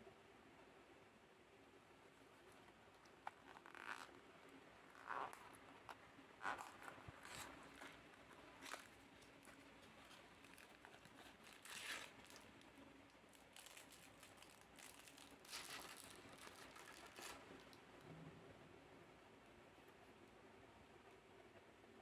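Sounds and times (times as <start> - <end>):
packaging crinkling and rustling: 2.2 - 17.9.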